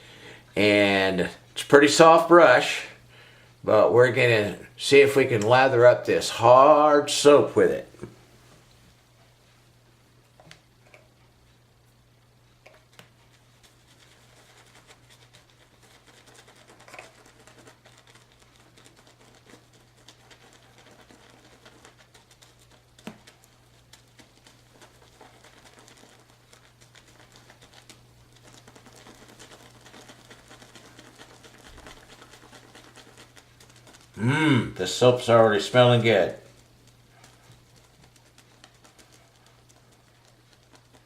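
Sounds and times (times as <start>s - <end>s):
shaving brush swirling on soap: 0.6s - 3.0s, 3.7s - 7.9s, 12.6s - 41.0s
brush tapping: 12.6s - 41.0s.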